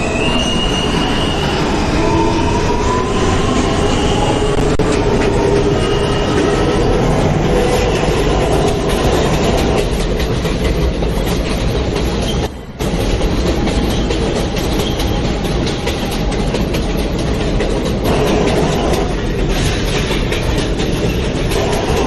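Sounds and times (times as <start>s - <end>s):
subway train running: 0.0s - 22.0s
clickety-clack of rail joints: 4.4s - 22.0s.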